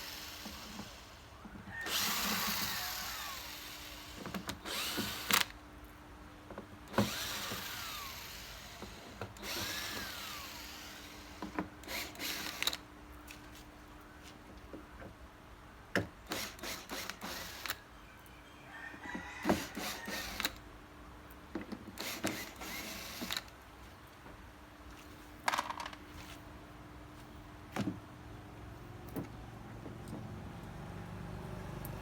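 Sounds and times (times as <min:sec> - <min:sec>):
tool and handling noise: 0:21.5 - 0:26.5.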